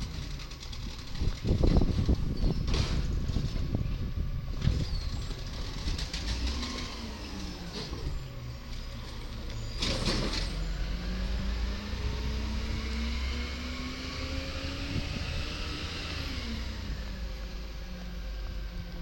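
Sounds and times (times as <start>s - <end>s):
garbage truck engine revving: 5.3s - 18.6s.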